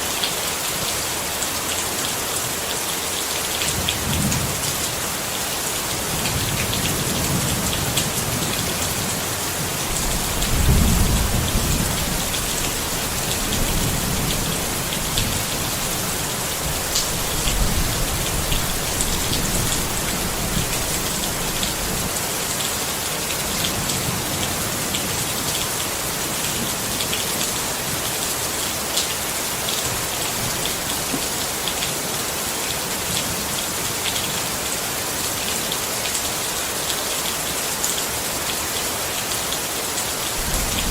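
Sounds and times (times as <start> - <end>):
rain on a tent: 0.0 - 40.9
low thunder rumble: 9.9 - 22.1, 40.4 - 40.9.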